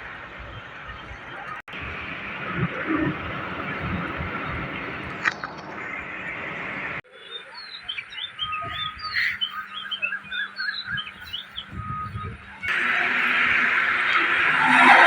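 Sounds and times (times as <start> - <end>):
small birds chirping: 0.4 - 15.0
loud steady rushing noise: 12.7 - 15.0.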